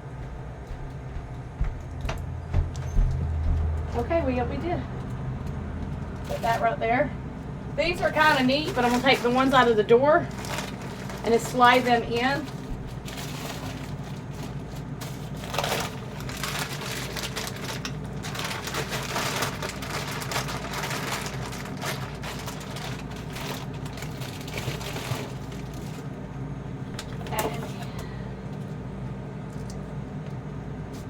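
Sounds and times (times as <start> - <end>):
steady low hum: 0.0 - 31.0
packages rustling and crinkling: 5.4 - 28.0.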